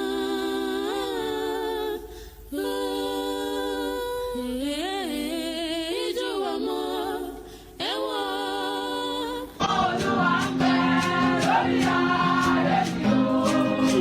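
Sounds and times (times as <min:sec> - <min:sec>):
person singing wordlessly: 0:06.0 - 0:14.0.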